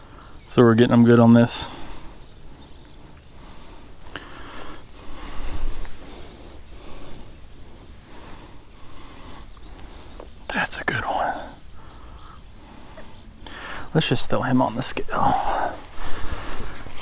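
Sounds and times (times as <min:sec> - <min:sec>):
high-pitched insect drone: 0:00.0 - 0:17.0
faint rustles and knocks: 0:15.4 - 0:17.0.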